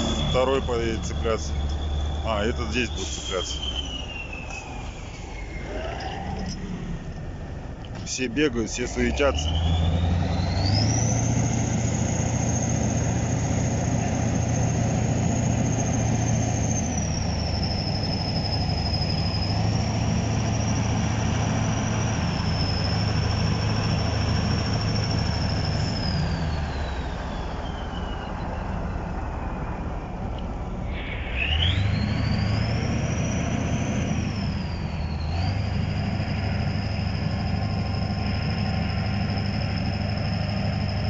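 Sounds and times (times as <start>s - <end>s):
high-pitched whistle: 0.0s - 5.9s, 24.6s - 29.0s, 30.8s - 35.6s
tractor diesel engine running: 0.0s - 41.0s.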